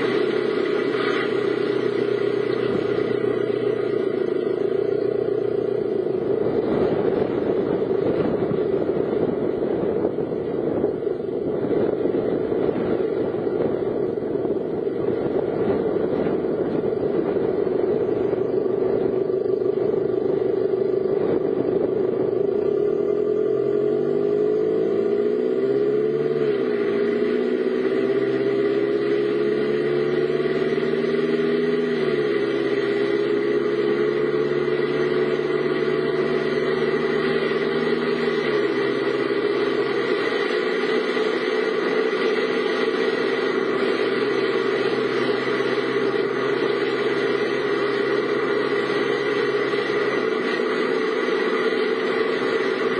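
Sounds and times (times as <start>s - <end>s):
car road noise and engine hum: 0.0s - 52.9s.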